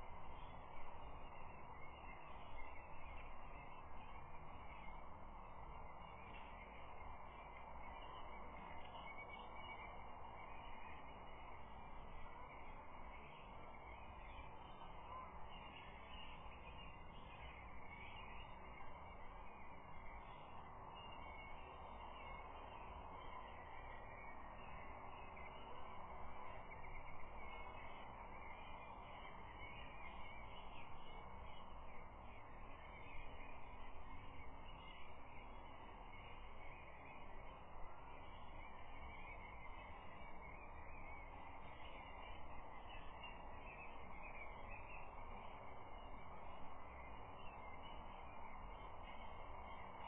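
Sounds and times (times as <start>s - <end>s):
distant birdsong: 0.0s - 50.0s
faint outdoor noise: 0.0s - 50.0s
steady background hiss: 0.0s - 50.0s.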